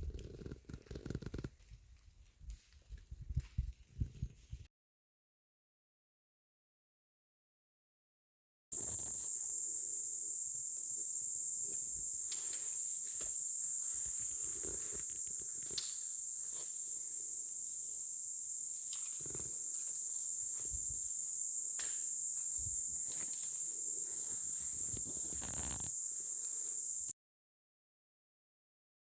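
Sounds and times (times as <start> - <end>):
high-pitched hiss: 8.8 - 27.1
rustles and crackles in undergrowth: 8.8 - 27.1.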